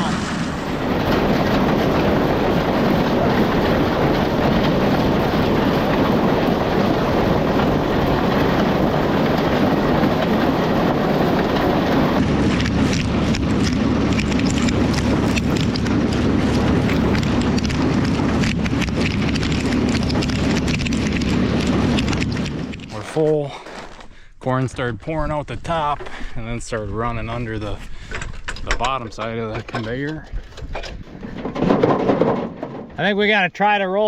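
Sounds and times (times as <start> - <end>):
engine drone: 0.0 - 23.2
conveyor rattling with corn ears: 0.0 - 34.0.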